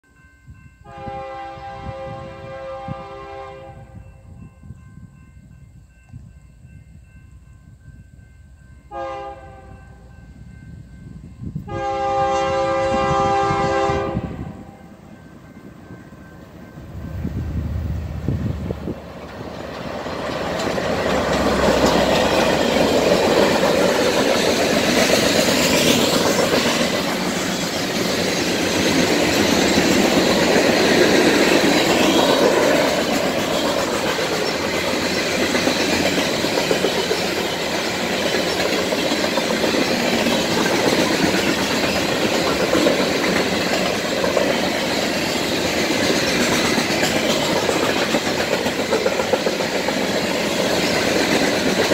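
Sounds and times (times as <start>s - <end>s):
diesel locomotives passing: 0.0s - 51.9s
freight cars rolling on rails: 15.1s - 51.9s.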